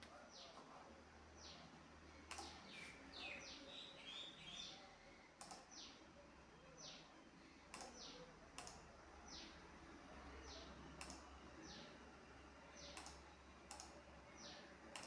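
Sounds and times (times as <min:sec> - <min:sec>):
soft clicks: 0:02.2 - 0:03.0, 0:05.4 - 0:05.8, 0:07.7 - 0:08.9, 0:11.0 - 0:11.3, 0:12.9 - 0:14.0
bird chirps: 0:02.2 - 0:05.1.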